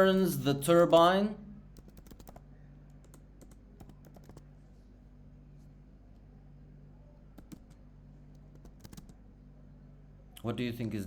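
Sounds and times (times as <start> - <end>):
low electrical hum: 0.0 - 11.0
keyboard keys clicking: 1.8 - 2.4, 3.0 - 4.4, 7.4 - 9.2.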